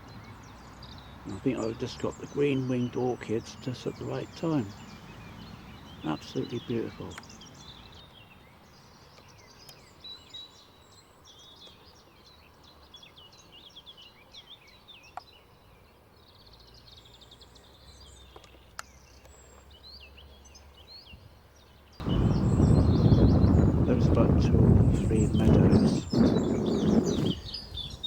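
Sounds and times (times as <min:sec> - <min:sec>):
birds chirping and trilling: 0:00.0 - 0:28.0.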